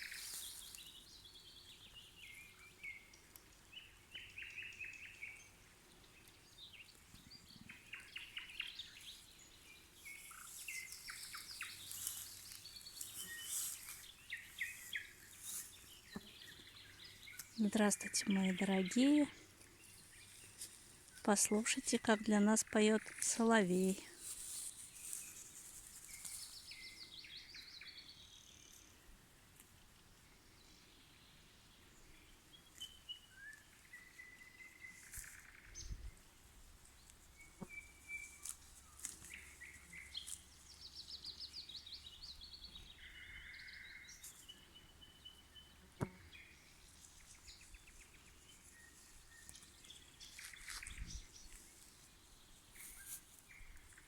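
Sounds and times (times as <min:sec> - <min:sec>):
nightingale singing: 0:00.0 - 0:05.6, 0:06.4 - 0:24.0, 0:32.6 - 0:36.1, 0:37.3 - 0:45.8.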